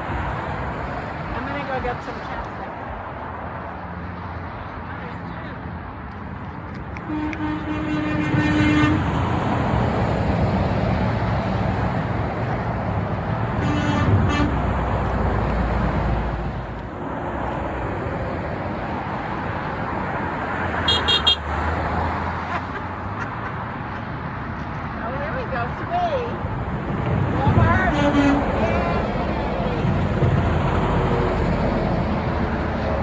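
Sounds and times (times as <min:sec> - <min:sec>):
heavy trucks passing: 0:00.0 - 0:33.0
truck horn: 0:07.0 - 0:09.4, 0:13.6 - 0:14.8, 0:20.8 - 0:21.7, 0:27.5 - 0:29.9.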